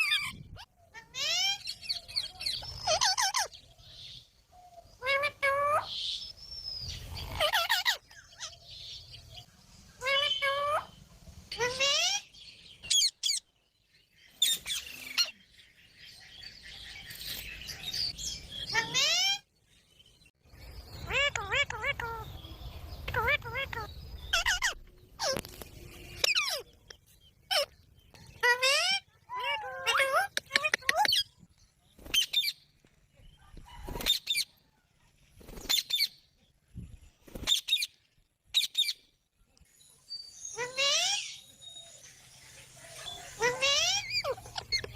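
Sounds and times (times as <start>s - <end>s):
parrots chirping chatter: 0.0s - 3.6s, 7.1s - 8.6s, 10.0s - 13.4s, 20.8s - 26.8s, 27.4s - 31.3s, 40.6s - 41.4s, 42.8s - 44.9s
parrots squawking: 2.6s - 3.5s, 7.2s - 8.6s, 11.6s - 12.3s, 18.7s - 19.4s, 21.0s - 22.4s, 23.0s - 25.4s, 28.4s - 31.2s, 43.1s - 44.9s.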